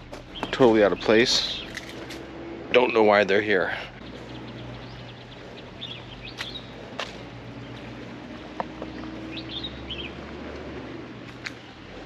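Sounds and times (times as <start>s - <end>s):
outdoor background noise: 0.0s - 12.0s
small birds chirping: 0.0s - 12.0s.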